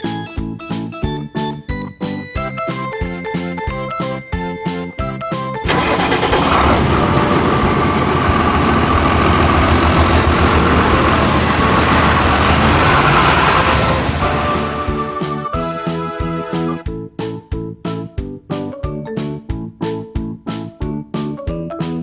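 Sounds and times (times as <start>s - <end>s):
truck engine rumbling: 5.7s - 16.8s.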